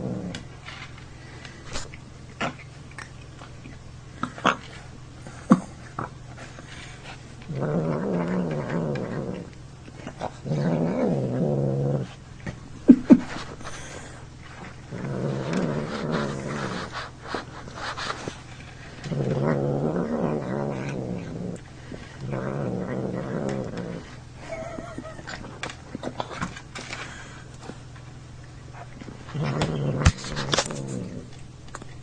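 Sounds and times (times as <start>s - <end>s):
cat growling: 0.0s - 0.4s, 7.4s - 12.2s, 12.9s - 17.1s, 18.9s - 26.5s, 28.8s - 31.4s.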